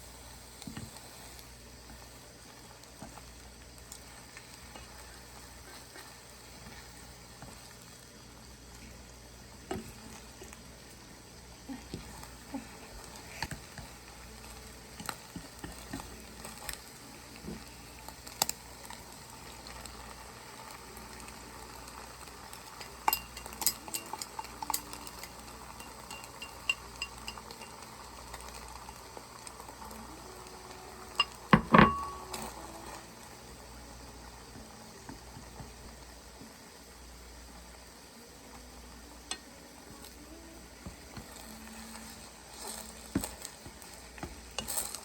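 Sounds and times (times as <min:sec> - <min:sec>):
faint sizzle: 0:00.0 - 0:45.0
utensils clinking against pots: 0:23.0 - 0:29.0, 0:31.1 - 0:32.8, 0:41.2 - 0:45.0.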